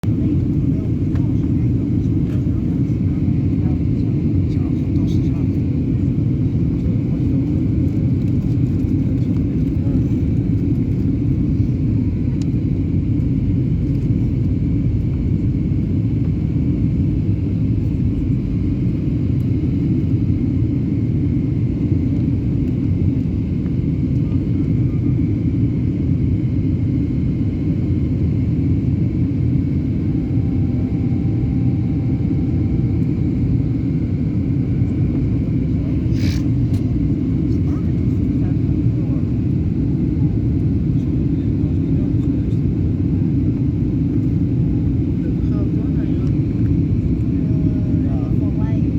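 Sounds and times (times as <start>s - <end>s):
aeroplane engine and airflow rumble: 0.0s - 48.9s
faint high tone: 30.0s - 33.2s.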